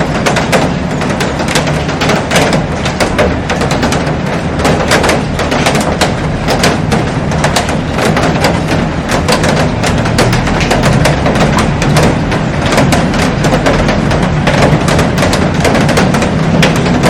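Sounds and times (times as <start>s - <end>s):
heavy rain on a glass roof: 0.0s - 17.0s.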